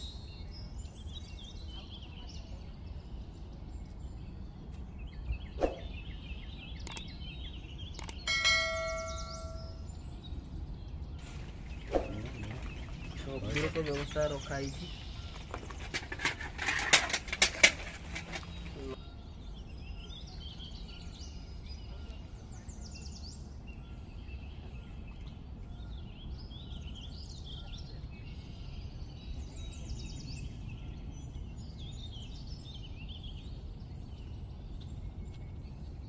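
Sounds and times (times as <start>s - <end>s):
birds chirping and trilling: 0.0s - 36.0s
low steady background hum: 0.0s - 36.0s.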